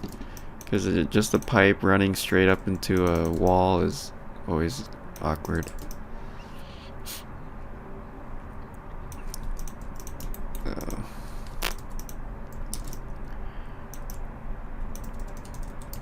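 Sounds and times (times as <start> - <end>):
steady low hum: 0.0 - 16.0
keyboard keys clicking: 5.2 - 6.0, 9.1 - 11.0, 11.6 - 13.0, 14.9 - 16.0.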